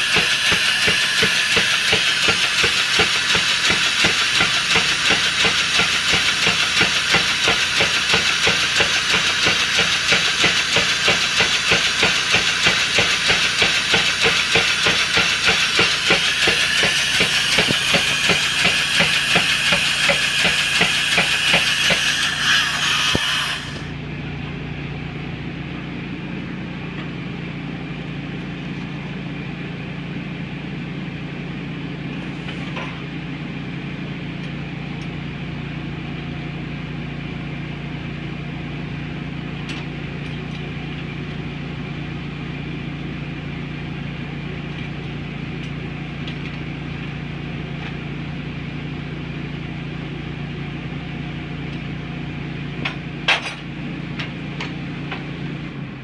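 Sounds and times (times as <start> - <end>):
power hammer motor hum: 0.0 - 23.9.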